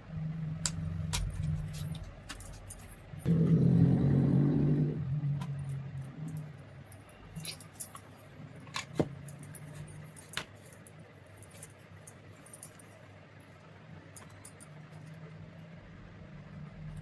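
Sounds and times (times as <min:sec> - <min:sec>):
faint low hum: 0:00.0 - 0:17.0
metal parts clinking: 0:01.1 - 0:03.3, 0:05.4 - 0:13.1.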